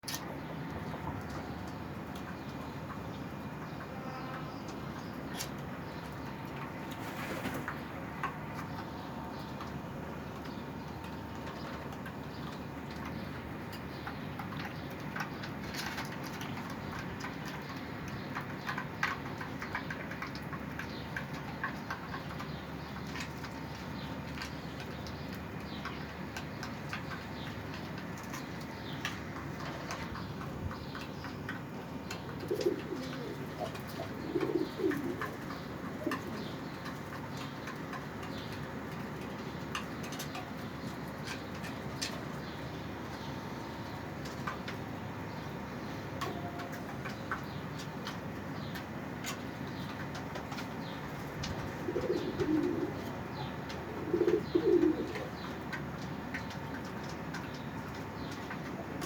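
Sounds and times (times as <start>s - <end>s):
high bird chirps and clicks: 7.7s - 58.8s
low wavering bird calls: 28.5s - 37.6s, 51.6s - 55.6s
pigeon cooing: 32.3s - 36.6s, 51.5s - 55.5s.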